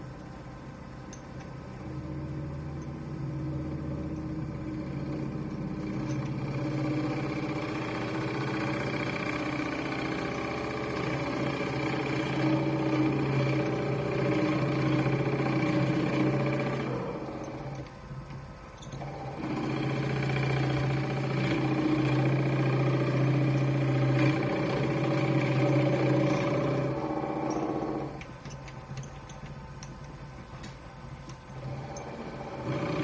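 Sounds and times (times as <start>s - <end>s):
wood lathe motor hum: 1.9s - 17.9s, 18.9s - 28.3s, 31.6s - 33.0s
tool cutting spinning wood: 1.9s - 18.0s, 18.9s - 29.2s, 30.6s - 33.0s.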